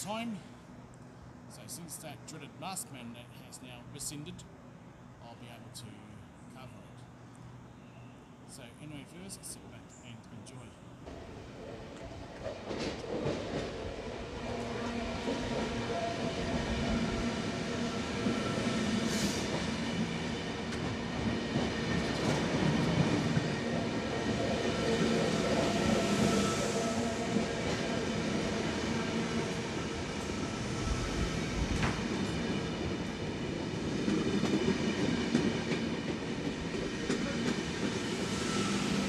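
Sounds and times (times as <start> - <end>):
train wheels rumbling on rail: 11.0 - 39.0.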